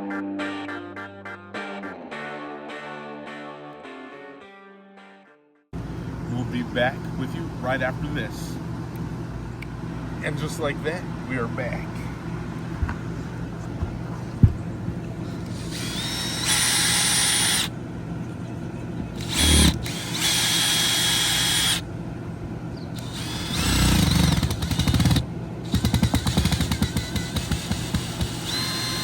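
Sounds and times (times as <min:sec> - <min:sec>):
power drill whining: 0:15.4 - 0:17.7, 0:19.2 - 0:21.8, 0:23.0 - 0:29.0.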